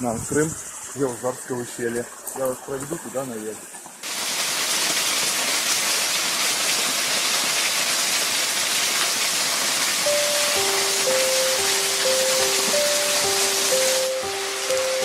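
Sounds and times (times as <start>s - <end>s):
waterfall rushing: 9.8s - 15.0s
held music notes: 10.0s - 15.0s.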